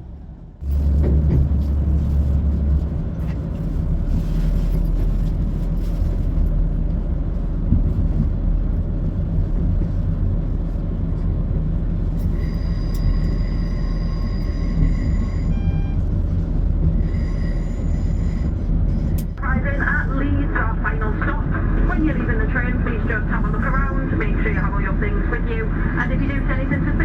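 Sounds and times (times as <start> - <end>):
train engine and wheels rumbling: 0.0 - 27.0
high wheel squeal: 12.4 - 15.9, 17.0 - 18.6.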